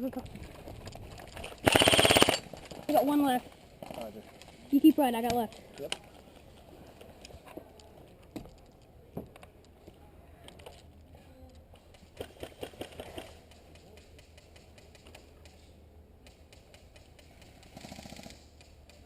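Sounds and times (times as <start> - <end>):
airsoft gun firing: 1.6 - 2.4.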